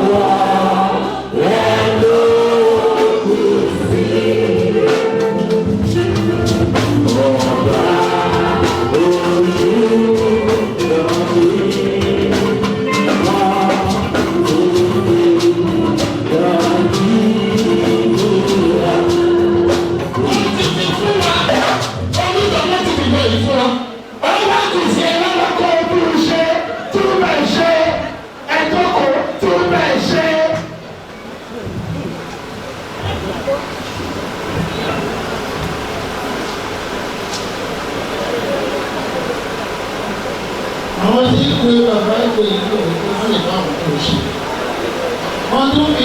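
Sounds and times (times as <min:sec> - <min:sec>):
choir singing: 0:00.0 - 0:21.9
drums: 0:00.0 - 0:23.7, 0:30.5 - 0:46.0.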